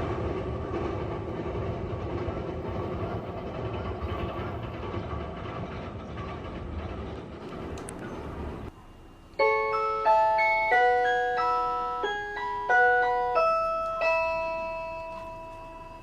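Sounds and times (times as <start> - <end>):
train noise: 0.0 - 16.0
bell-like chime melody: 9.4 - 16.0.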